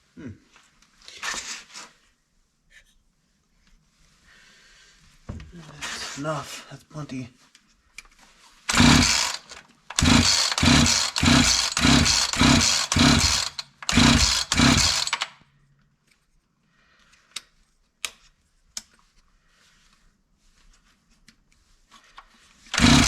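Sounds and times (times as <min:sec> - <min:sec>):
chainsaw recoil starter yanks: 0:08.7 - 0:15.4, 0:22.7 - 0:23.0.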